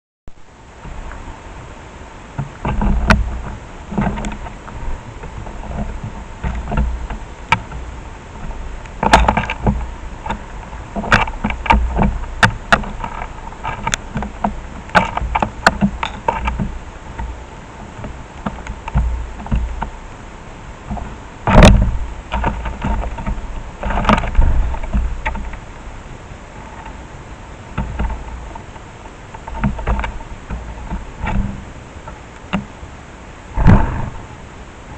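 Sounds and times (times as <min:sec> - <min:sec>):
low thumps and rumbles: 0:02.3 - 0:20.2, 0:20.8 - 0:26.0, 0:33.4 - 0:34.7.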